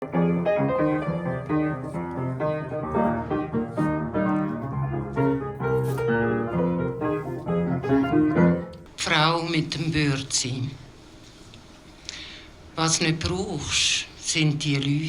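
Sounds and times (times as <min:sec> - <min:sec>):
solo piano playing: 0:00.0 - 0:09.0.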